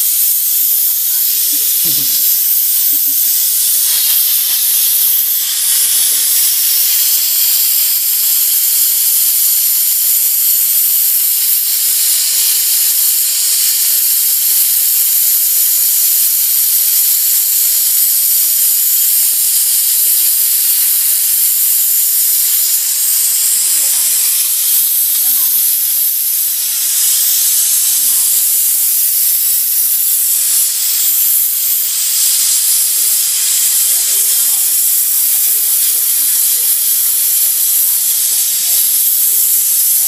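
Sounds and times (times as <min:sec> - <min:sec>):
steam hissing from nozzle: 0:00.0 - 0:40.0.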